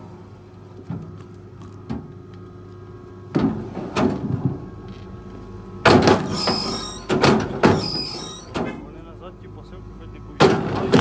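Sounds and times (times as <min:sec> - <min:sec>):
steady engine hum: 0:00.0 - 0:11.0
loud metallic clanks: 0:05.9 - 0:08.9, 0:10.4 - 0:11.0
brief high squeal: 0:06.3 - 0:08.6.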